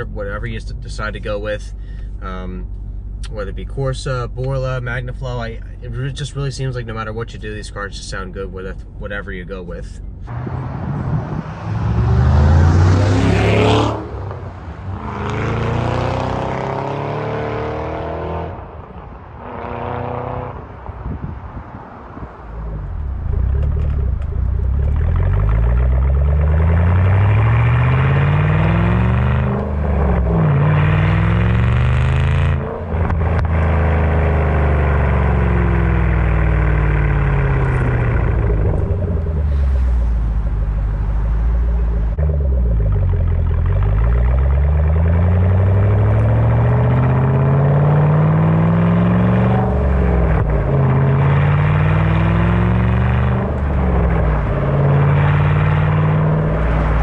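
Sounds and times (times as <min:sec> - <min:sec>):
car engine accelerating: 0:10.1 - 0:57.0.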